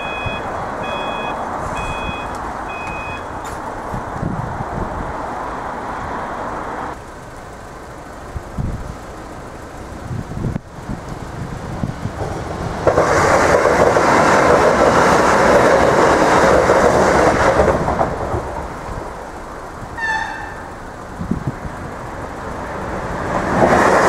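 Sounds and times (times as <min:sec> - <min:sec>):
brief high tone: 0:00.0 - 0:03.3
train wheels clacking on rails: 0:10.8 - 0:24.0.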